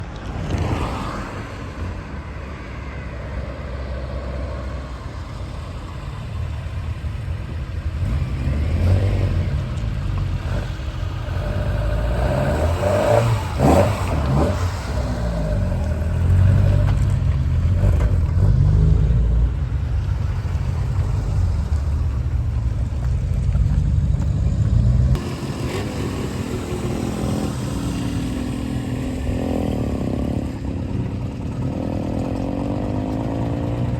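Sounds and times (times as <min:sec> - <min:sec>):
car engine revving: 0:04.8 - 0:30.7.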